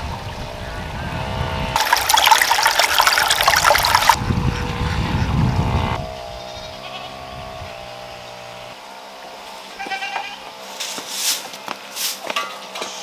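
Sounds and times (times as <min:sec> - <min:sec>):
water trickling: 0:01.8 - 0:04.2
goat bleating: 0:09.8 - 0:10.5.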